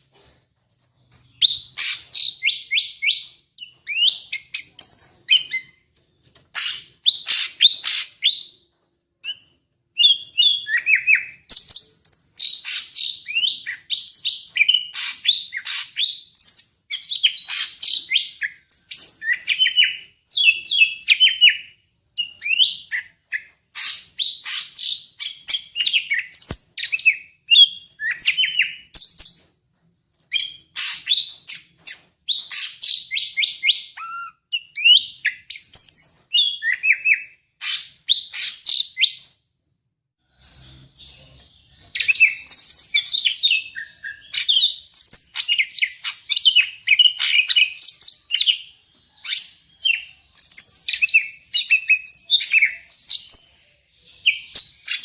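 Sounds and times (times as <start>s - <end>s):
bird singing chirps and trills: 40.4s - 55.0s.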